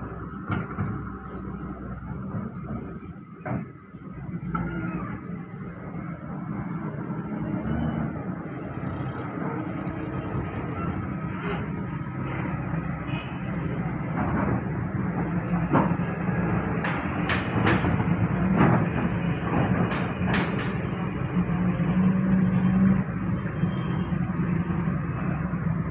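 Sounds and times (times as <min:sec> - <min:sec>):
diesel engine running steadily: 0:00.0 - 0:25.9
clanks and knocks: 0:14.0 - 0:21.5.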